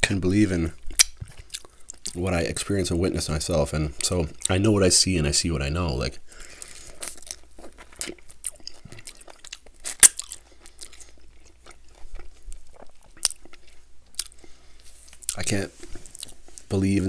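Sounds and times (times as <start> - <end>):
crunching bites of fried chicken: 6.6 - 14.4.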